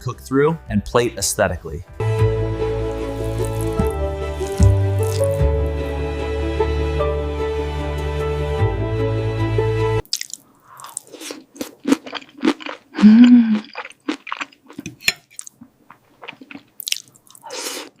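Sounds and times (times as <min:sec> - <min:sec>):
background music: 0:00.0 - 0:10.0
crunchy bites and chewing: 0:03.0 - 0:05.8, 0:10.0 - 0:18.0.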